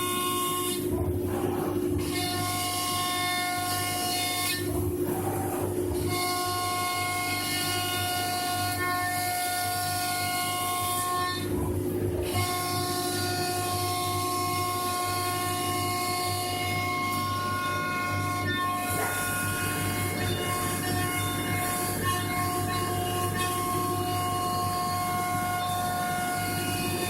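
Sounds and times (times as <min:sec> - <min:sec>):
router spindle whine: 0:12.3 - 0:27.0.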